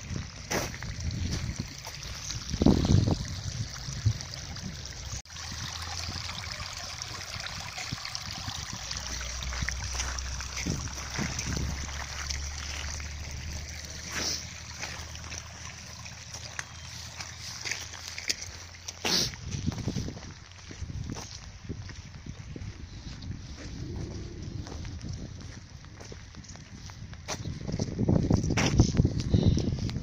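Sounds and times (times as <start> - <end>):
rain on gravel: 9.0 - 19.3.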